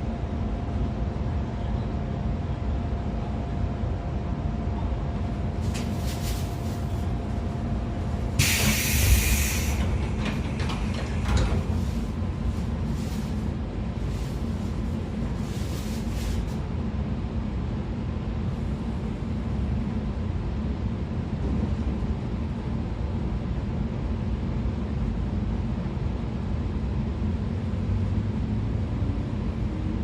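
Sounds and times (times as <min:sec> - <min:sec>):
train wheels rumbling on rail: 0:00.0 - 0:30.0
loud hiss of air: 0:05.6 - 0:07.1, 0:08.3 - 0:10.2.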